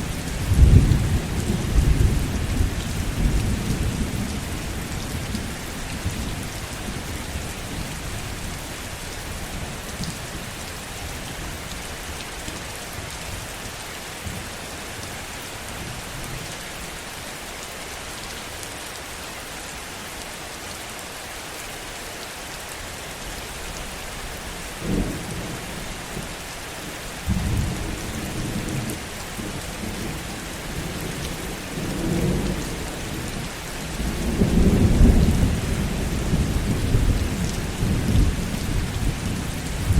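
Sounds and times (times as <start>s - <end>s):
heavy rain falling: 0.0s - 39.9s
rolling thunder: 0.4s - 4.9s, 30.8s - 39.9s.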